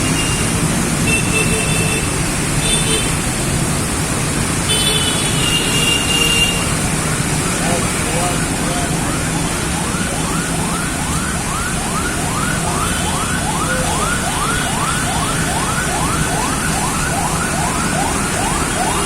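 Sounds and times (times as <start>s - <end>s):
rain hissing: 1.9s - 10.6s
siren yelping: 8.1s - 19.0s.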